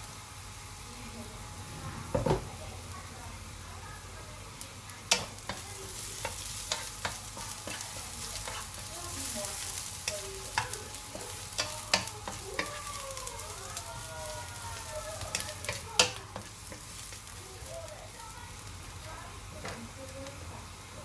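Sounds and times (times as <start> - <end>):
ginger sizzling in hot oil: 0.0 - 21.0
wooden spatula clacking on pan: 10.0 - 13.0, 14.8 - 17.3.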